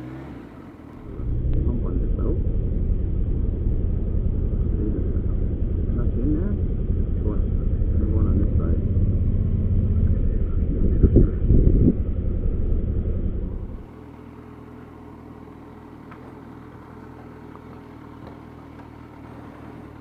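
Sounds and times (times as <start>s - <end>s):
motorcycle engine rumble: 0.0s - 20.0s
wind noise: 7.9s - 13.8s.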